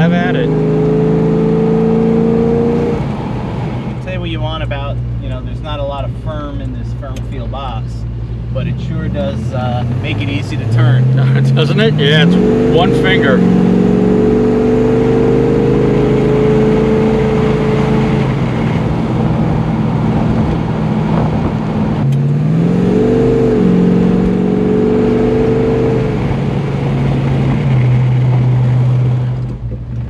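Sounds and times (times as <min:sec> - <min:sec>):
car engine running: 0:00.0 - 0:30.0
road and wind noise: 0:00.0 - 0:30.0.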